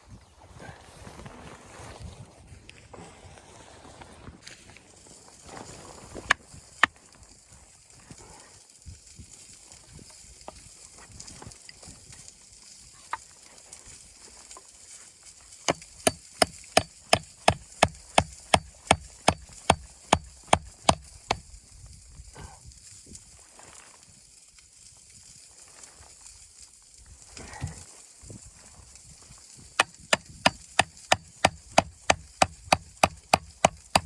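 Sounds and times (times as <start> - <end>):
sharp knocks: 15.7 - 21.4, 29.8 - 34.0.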